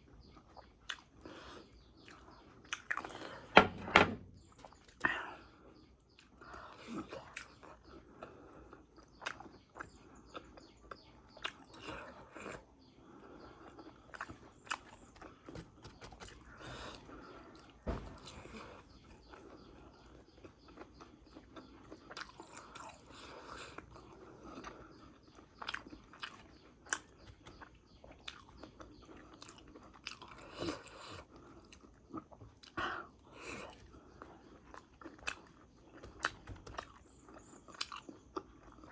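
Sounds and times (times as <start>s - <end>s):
crunchy food chewing: 0.0s - 3.4s, 6.1s - 38.9s.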